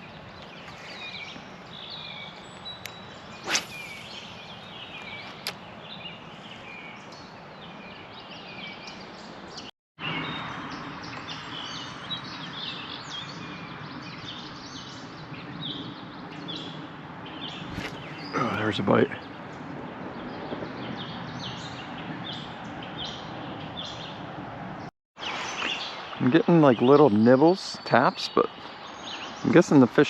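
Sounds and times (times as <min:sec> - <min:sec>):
small birds chirping: 0:00.0 - 0:24.3, 0:25.2 - 0:30.0
sharp swish-like click: 0:03.5 - 0:04.4.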